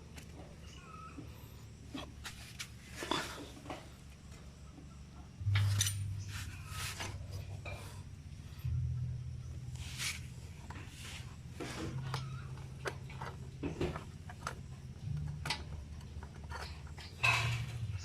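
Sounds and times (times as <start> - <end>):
low steady hum: 0.0 - 18.0
metal tools clinking and knocking: 5.5 - 6.4, 11.6 - 18.0.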